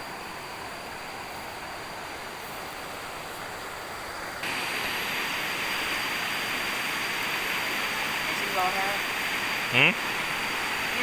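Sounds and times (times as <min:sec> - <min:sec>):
waterfall rushing: 0:04.4 - 0:11.0.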